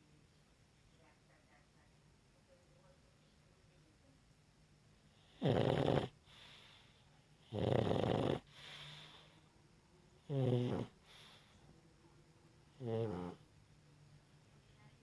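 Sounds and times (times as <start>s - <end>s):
dog snoring: 5.1s - 6.8s, 7.4s - 9.3s, 10.2s - 11.5s, 12.8s - 13.5s
quiet breath: 6.1s - 7.6s, 8.4s - 10.2s, 10.8s - 13.5s.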